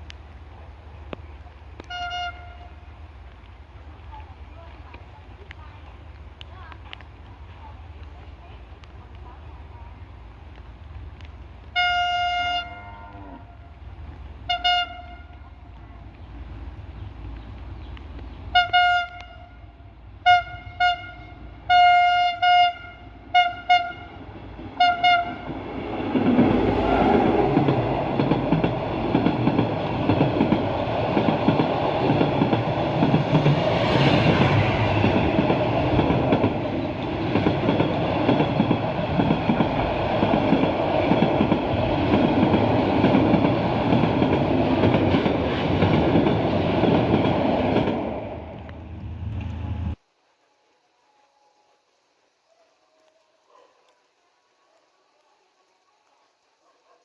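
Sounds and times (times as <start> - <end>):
train passing rumble: 0.0 - 50.2
train horn tooting: 1.8 - 2.9, 11.7 - 13.8, 14.5 - 15.9, 18.5 - 25.6.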